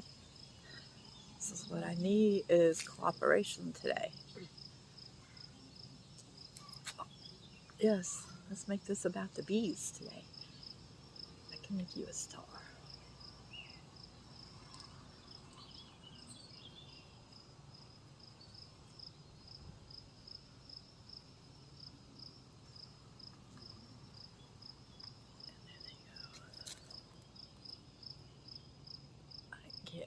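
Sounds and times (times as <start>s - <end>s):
insect chirping: 0.0s - 30.0s.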